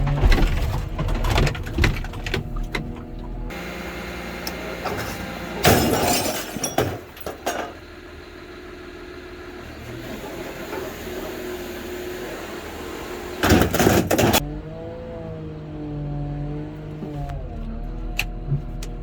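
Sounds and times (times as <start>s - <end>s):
diesel engine running: 0.0s - 19.0s
loud metal crashing: 4.8s - 7.7s
metal clanks: 4.8s - 7.8s.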